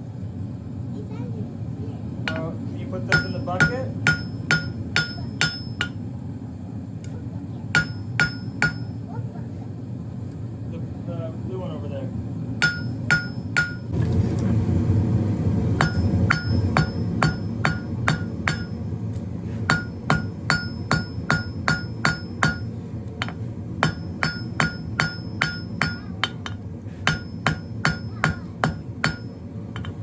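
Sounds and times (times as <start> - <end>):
anvil ringing: 2.3 - 6.0, 7.8 - 9.0, 12.6 - 13.9, 15.8 - 18.9, 19.7 - 30.0
hammer striking steel on anvil: 2.3 - 6.0, 7.7 - 9.0, 12.6 - 13.9, 15.8 - 18.9, 19.7 - 30.0.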